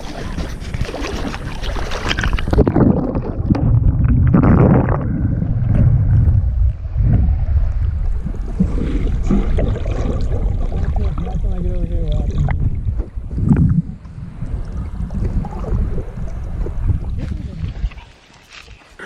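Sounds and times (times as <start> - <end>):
water gurgling: 0.0 - 19.0
loud low rumble: 3.5 - 8.4.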